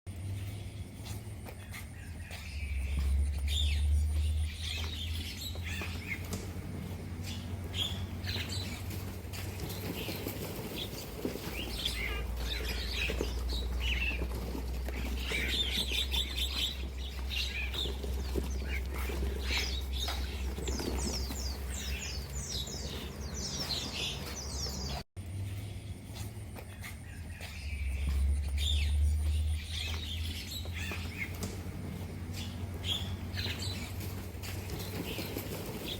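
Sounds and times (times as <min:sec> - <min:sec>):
steady low hum: 0:00.1 - 0:20.6
small birds chirping: 0:00.1 - 0:35.9.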